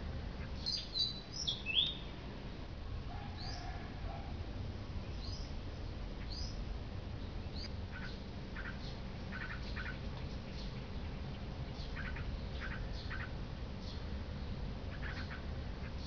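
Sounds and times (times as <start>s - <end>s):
low background noise: 0.0s - 16.0s
bird chirping: 0.4s - 2.1s, 5.0s - 5.5s, 6.2s - 6.6s, 7.2s - 16.0s
birds twittering: 0.4s - 2.2s, 3.3s - 4.2s, 5.0s - 16.0s.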